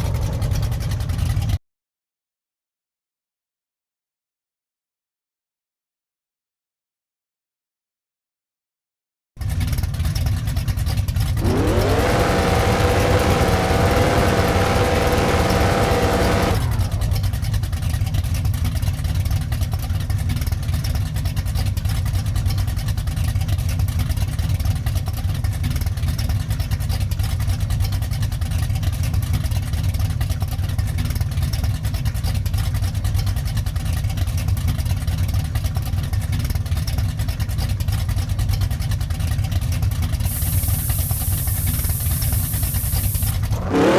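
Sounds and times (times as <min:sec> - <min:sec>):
race car engine revving: 0:00.0 - 0:01.5, 0:11.3 - 0:17.6, 0:40.3 - 0:43.9.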